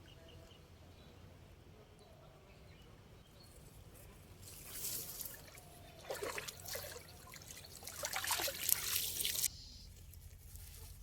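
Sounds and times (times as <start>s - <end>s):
water splashing and trickling: 4.4s - 9.5s.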